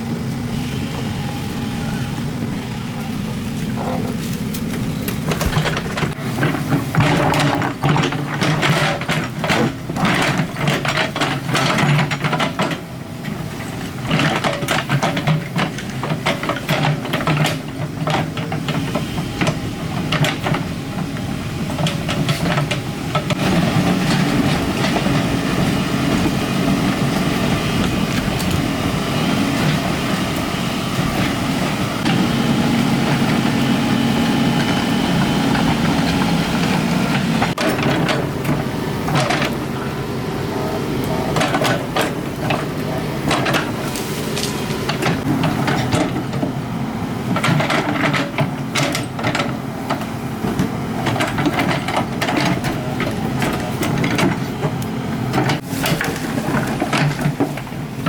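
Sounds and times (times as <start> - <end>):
excavator engine running: 0.0 - 58.0
bucket clanking and scraping rock: 2.4 - 12.9, 41.0 - 46.6, 50.6 - 58.0.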